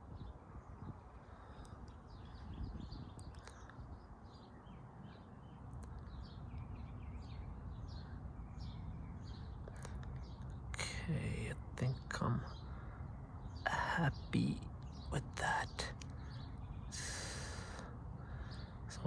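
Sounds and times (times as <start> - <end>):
small birds chirping: 0.0 - 19.0
faint clicks: 1.5 - 2.1, 3.1 - 3.8, 5.7 - 6.7.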